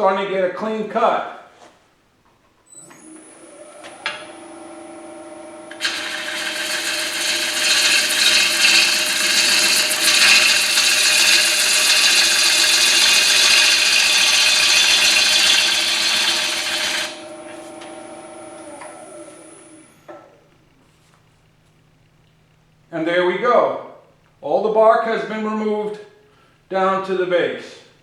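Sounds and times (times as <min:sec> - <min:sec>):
lathe motor whine: 0:02.9 - 0:20.2
gouge shearing wet wood: 0:05.7 - 0:18.0.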